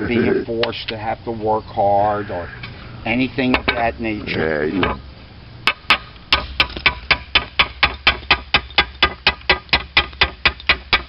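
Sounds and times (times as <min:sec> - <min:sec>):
hammer striking slate: 0:05.7 - 0:11.0.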